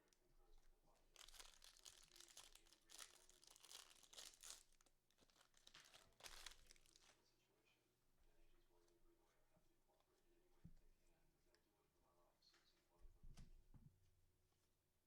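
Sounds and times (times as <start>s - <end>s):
foil wrapper crinkling and tearing: 1.1s - 7.2s.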